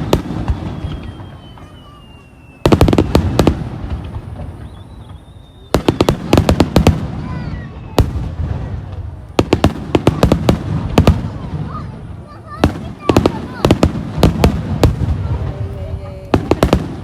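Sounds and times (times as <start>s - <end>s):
faint falling whistle: 0.0s - 2.8s, 4.4s - 6.0s
fireworks bangs: 0.0s - 17.0s.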